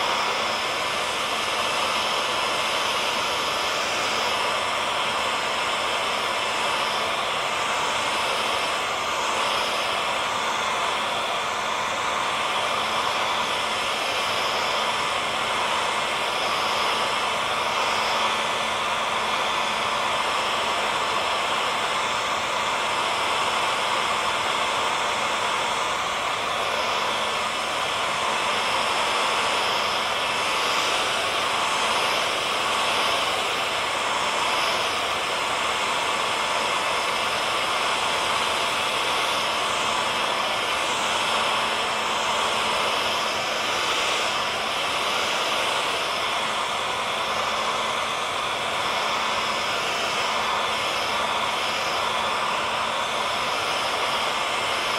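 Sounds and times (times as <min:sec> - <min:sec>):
hair dryer blowing air: 0:00.0 - 0:54.9.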